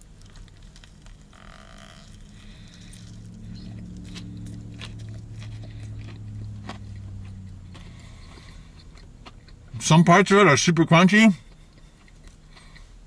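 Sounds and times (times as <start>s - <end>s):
crunchy chewing: 0.0s - 9.9s, 11.4s - 13.0s
steady low hum: 0.0s - 13.0s.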